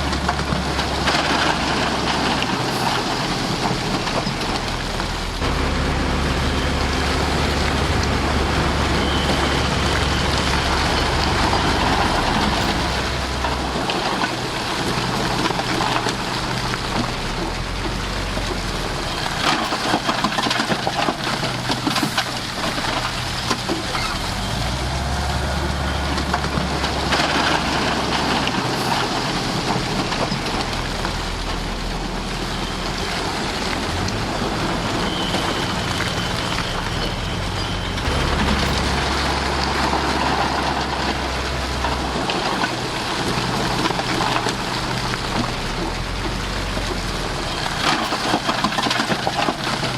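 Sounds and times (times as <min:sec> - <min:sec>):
diesel engine drone: 0:00.0 - 0:49.9
knocks and clatter: 0:07.6 - 0:24.7, 0:32.6 - 0:49.9.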